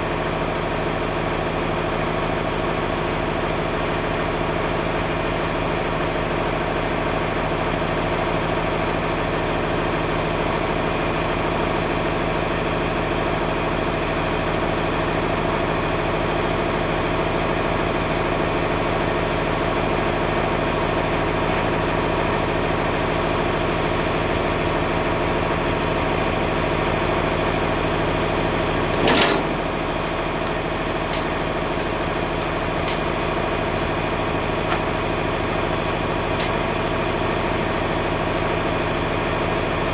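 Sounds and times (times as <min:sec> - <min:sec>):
tractor engine running: 0:13.8 - 0:39.9
sharp clank: 0:28.9 - 0:37.6
light clicks: 0:29.0 - 0:35.8.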